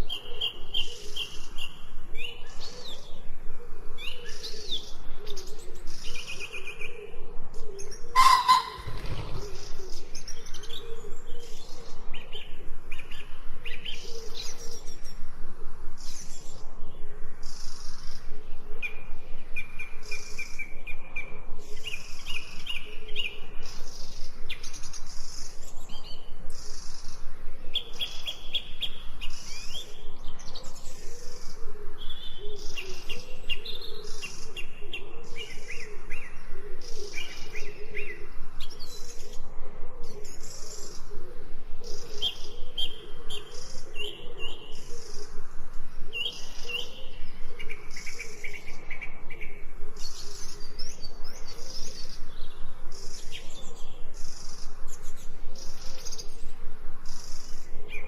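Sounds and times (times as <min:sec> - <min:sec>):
songbirds singing and chirping: 0:00.0 - 0:58.0
low wavering bird call: 0:08.1 - 0:09.3.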